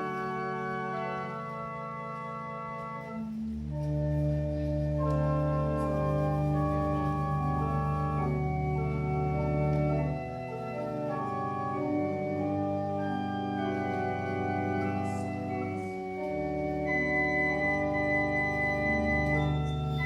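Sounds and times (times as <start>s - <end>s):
church organ chords: 0.0s - 20.0s.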